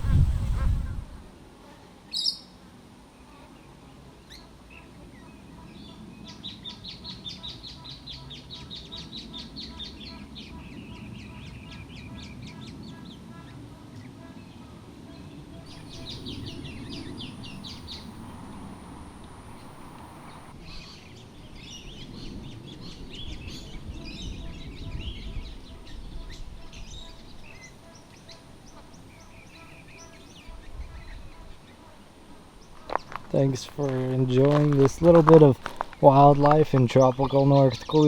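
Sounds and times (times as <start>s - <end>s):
low rumble: 15.7s - 20.8s
wild birds chattering: 15.7s - 38.0s.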